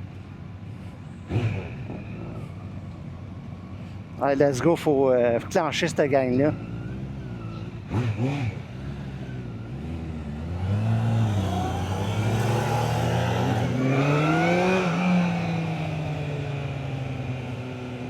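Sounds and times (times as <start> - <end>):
motorcycle engine accelerating: 1.2 - 2.7, 6.6 - 18.0.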